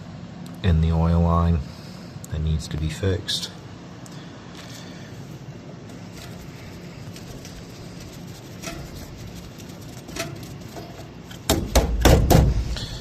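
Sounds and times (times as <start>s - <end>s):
steady low hum: 0.0s - 13.0s
rustling: 5.8s - 11.5s
loud knocks: 11.5s - 12.6s.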